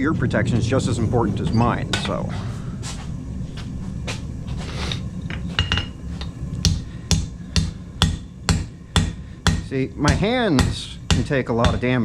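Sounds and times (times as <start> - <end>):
low hum: 0.0 - 12.0
hammer striking steel on anvil: 5.3 - 12.0.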